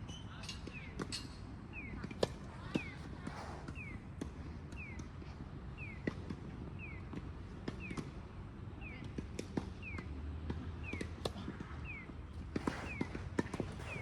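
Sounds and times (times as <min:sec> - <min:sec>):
tennis balls struck and bouncing: 0:09.0 - 0:14.0.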